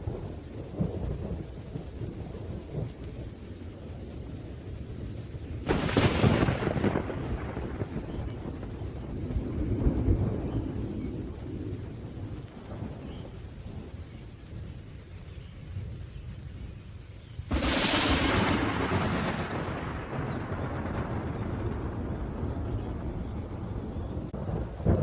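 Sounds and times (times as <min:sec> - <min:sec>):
low thunder rumbling: 0:00.0 - 0:25.0
rain falling: 0:00.0 - 0:25.0
close thunderclap: 0:05.6 - 0:14.0, 0:17.5 - 0:25.0.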